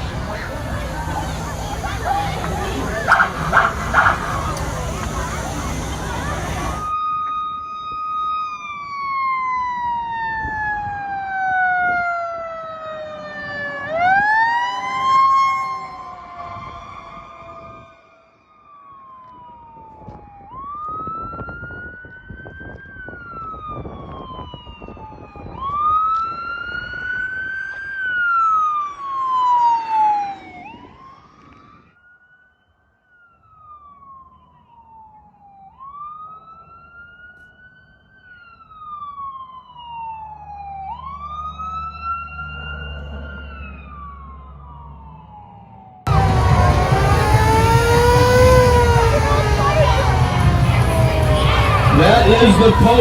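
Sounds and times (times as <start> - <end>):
vehicle road noise: 0.0 - 8.1, 8.7 - 18.2, 35.8 - 53.0
emergency vehicle siren wailing: 0.0 - 53.0
low rumble: 46.1 - 53.0.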